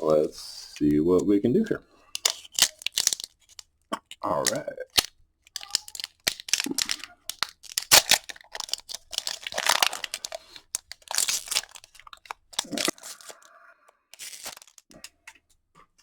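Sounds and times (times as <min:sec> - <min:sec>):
foil wrapper tearing and crinkling: 0:02.2 - 0:03.7, 0:04.4 - 0:13.5, 0:14.1 - 0:14.9.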